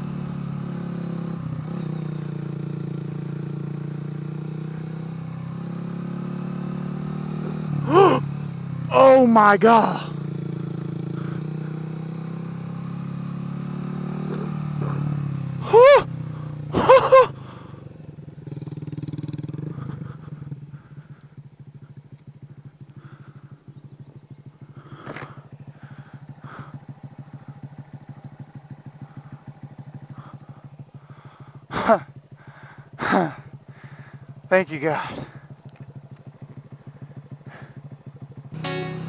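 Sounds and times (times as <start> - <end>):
motorcycle engine running: 0.0 - 39.0
loud high-pitched sounds: 38.6 - 39.0.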